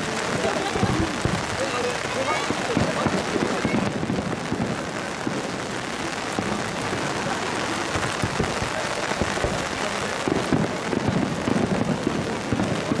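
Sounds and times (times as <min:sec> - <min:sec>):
distant fireworks booms: 0:00.0 - 0:13.0
heavy rain on an umbrella: 0:00.0 - 0:13.0.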